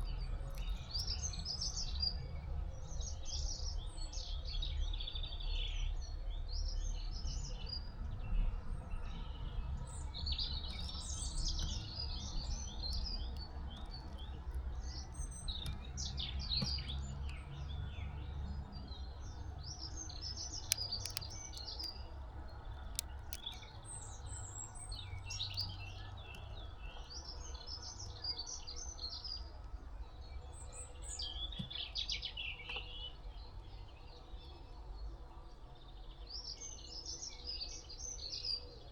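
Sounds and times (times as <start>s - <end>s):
songbirds chirping and twittering: 0.0s - 38.9s
sharp clicks: 20.4s - 26.5s.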